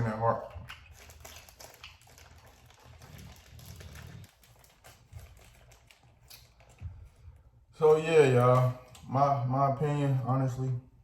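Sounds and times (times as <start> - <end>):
faint chewing and mouth sounds: 0.2 - 7.6.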